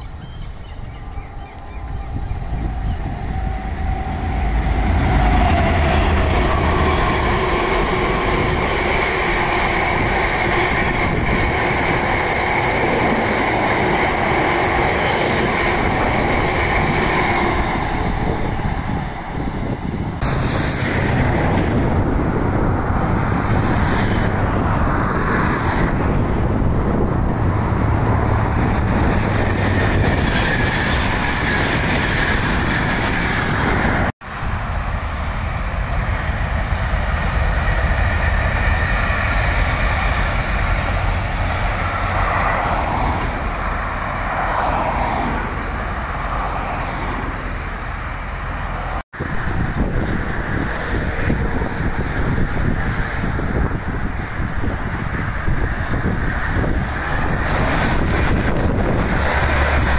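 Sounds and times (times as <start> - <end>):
diesel train passing: 0.0 - 59.9
freight train passing: 0.0 - 59.9
high whine: 0.8 - 22.8.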